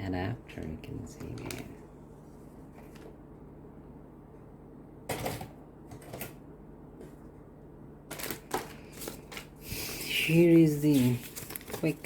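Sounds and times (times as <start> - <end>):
low steady hum: 0.0 - 12.0
paper packaging rustling: 8.1 - 12.0.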